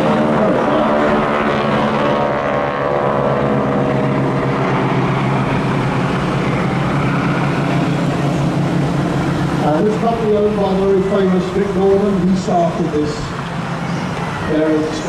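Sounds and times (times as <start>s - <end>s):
propeller planes droning: 0.0s - 15.0s.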